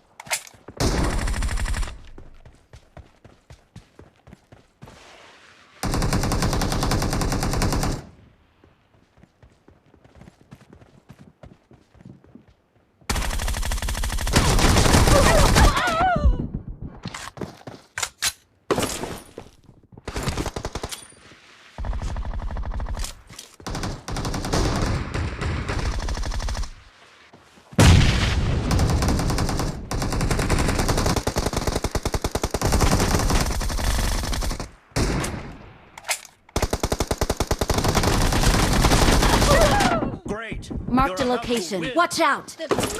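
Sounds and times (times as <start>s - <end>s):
video game automatic gunfire: 23.7s - 26.8s, 28.7s - 35.1s, 36.6s - 39.8s.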